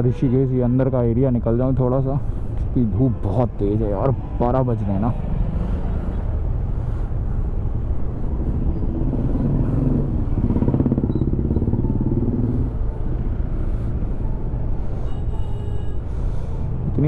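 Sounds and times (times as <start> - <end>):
motorcycle engine running: 8.1 - 14.7.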